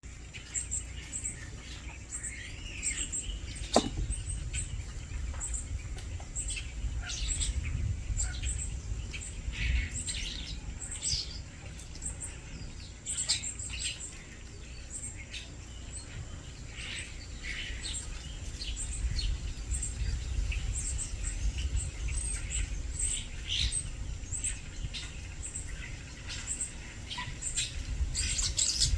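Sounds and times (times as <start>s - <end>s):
small songbird chirping: 0.0s - 28.9s.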